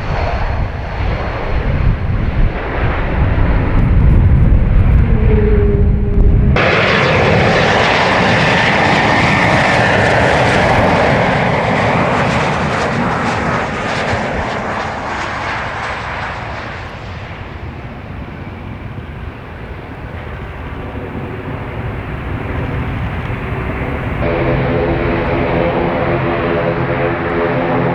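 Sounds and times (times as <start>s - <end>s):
jet engines roaring with whine: 0.0s - 27.9s.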